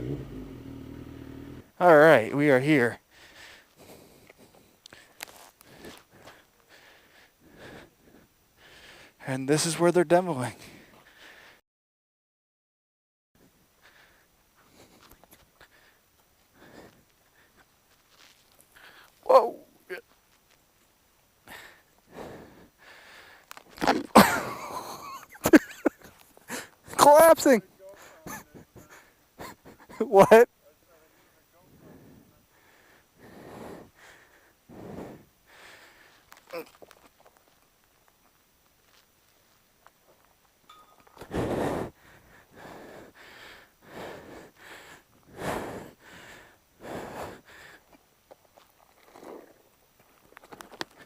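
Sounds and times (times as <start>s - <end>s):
person breathing heavily: 3.0s - 9.2s, 10.5s - 11.6s, 13.8s - 17.7s, 18.7s - 19.2s, 21.4s - 23.6s, 26.4s - 26.9s, 27.9s - 29.9s, 31.0s - 36.8s, 41.2s - 48.0s.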